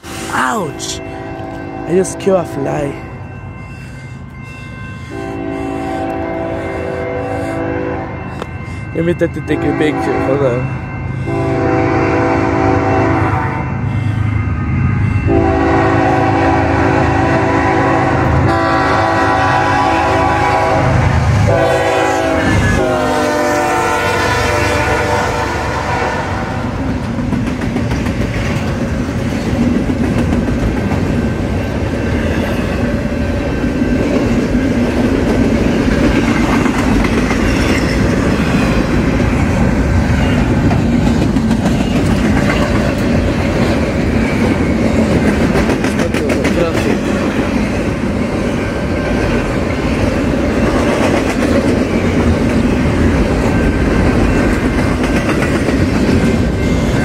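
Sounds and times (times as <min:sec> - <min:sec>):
locomotive air horn blasts: 0:05.1 - 0:08.2, 0:11.3 - 0:13.7, 0:15.3 - 0:26.6
train wheels clattering on rails: 0:26.7 - 0:57.0.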